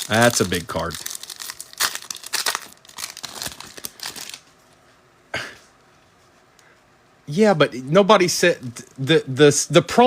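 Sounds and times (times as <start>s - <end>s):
card wrapper crinkling: 0.0s - 4.5s.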